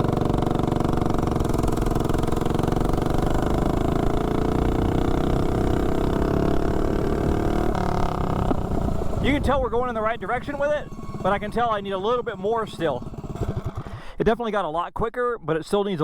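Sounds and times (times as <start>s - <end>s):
mini bike engine pulling hard: 0.0s - 14.2s.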